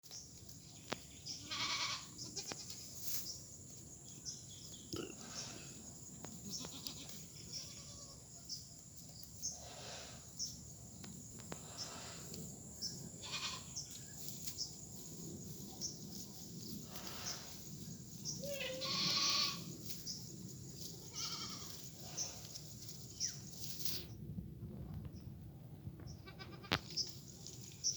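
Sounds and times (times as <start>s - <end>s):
goats bleating: 1.4s - 2.8s, 6.4s - 8.2s, 13.2s - 13.7s, 18.5s - 19.7s, 21.0s - 21.8s.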